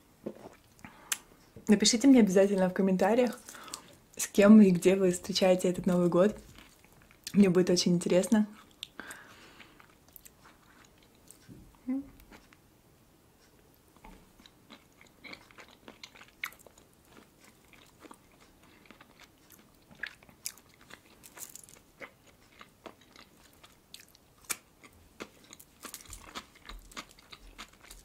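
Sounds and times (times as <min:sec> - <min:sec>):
chewing with wet mouth clicks: 0:14.0 - 0:28.0.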